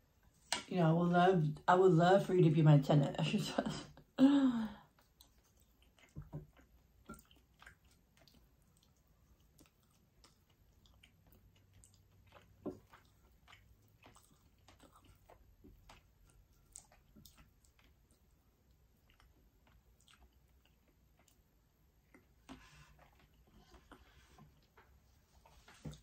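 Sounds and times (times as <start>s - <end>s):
faint chewing: 4.6s - 26.0s.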